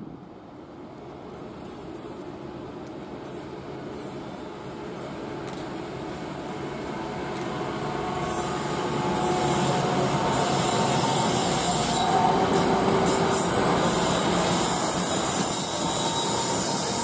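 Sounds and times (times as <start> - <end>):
train wheels rumbling on rail: 0.8 - 17.0
hiss: 8.2 - 17.0.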